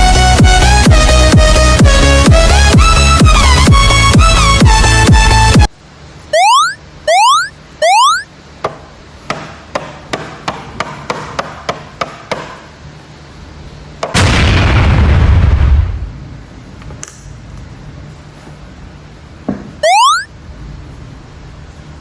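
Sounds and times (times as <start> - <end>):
rising electronic whoops: 6.4 - 8.3, 19.8 - 20.3
loud rumbling blast: 14.2 - 16.5.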